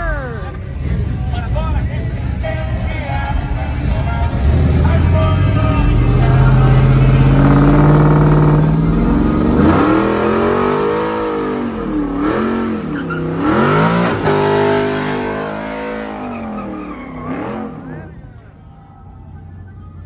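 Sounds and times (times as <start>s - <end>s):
engine revving in burnout: 3.6s - 18.3s.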